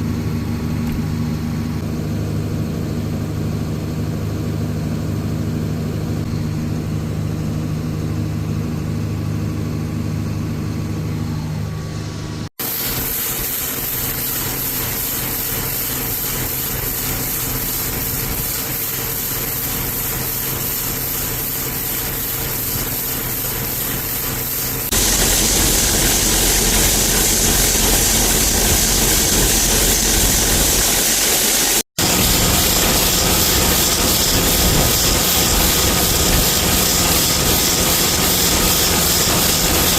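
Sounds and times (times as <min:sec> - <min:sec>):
diesel machinery engine running: 0:13.8 - 0:39.9.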